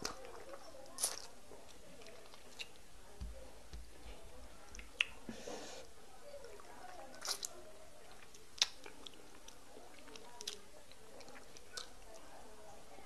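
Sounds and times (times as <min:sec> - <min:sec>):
person chewing with mouth smacks: 0:00.0 - 0:01.3, 0:02.0 - 0:02.8, 0:07.1 - 0:12.2.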